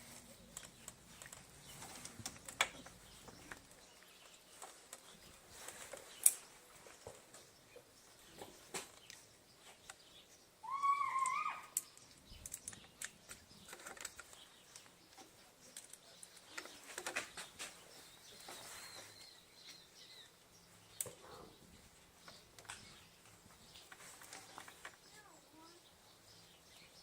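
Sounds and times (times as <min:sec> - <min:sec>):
bird wavering call: 0:10.6 - 0:11.8.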